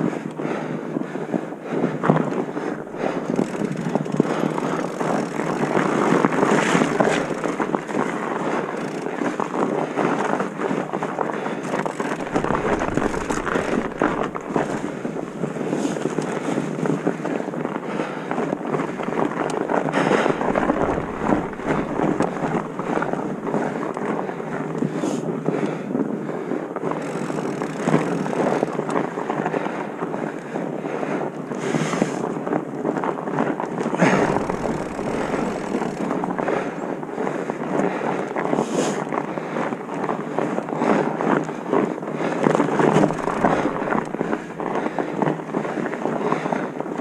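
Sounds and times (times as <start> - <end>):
rattling and crunching: 2.9 - 9.1, 11.8 - 15.9, 20.0 - 23.6, 34.0 - 36.5, 42.7 - 45.1
deep rumbles: 6.7 - 7.8, 12.0 - 15.8, 20.0 - 23.7, 34.0 - 36.5, 42.8 - 45.0
wind buffeting microphone: 10.6 - 17.8, 18.4 - 26.3, 32.4 - 38.0, 41.3 - 47.0.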